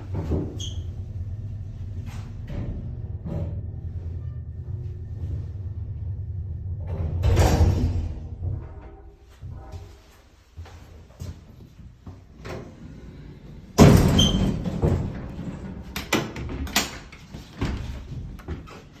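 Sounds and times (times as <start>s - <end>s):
metal clanks and rattles: 6.5s - 9.6s, 13.8s - 18.5s
elevator door banging shut: 6.8s - 8.9s, 13.8s - 16.9s.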